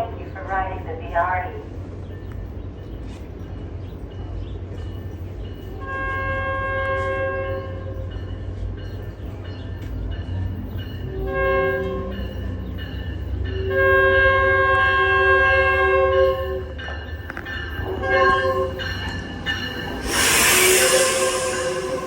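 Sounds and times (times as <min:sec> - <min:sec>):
locomotive rumble: 0:00.0 - 0:22.0
locomotive horn: 0:05.8 - 0:07.9, 0:11.1 - 0:12.2, 0:13.6 - 0:16.6, 0:17.9 - 0:18.8, 0:20.2 - 0:22.0.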